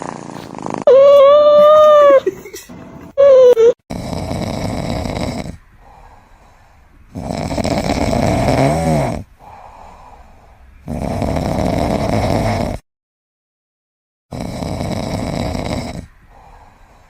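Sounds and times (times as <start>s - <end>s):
pet snoring: 0.0s - 1.2s, 3.9s - 6.0s, 7.1s - 9.8s, 10.8s - 12.8s, 14.3s - 17.0s.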